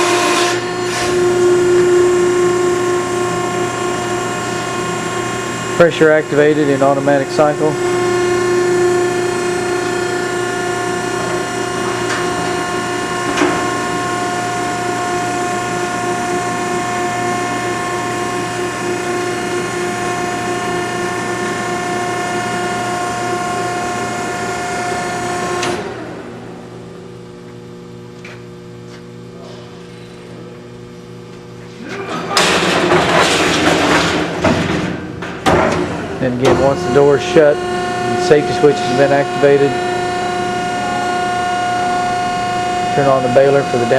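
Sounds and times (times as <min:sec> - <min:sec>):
electric motor and hydraulic pump whine: 0:00.0 - 0:43.9.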